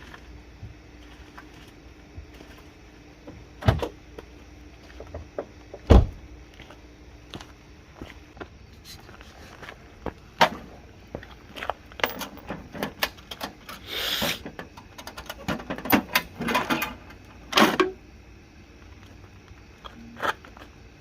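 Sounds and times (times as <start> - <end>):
metal tools clinking: 12.0 - 13.5.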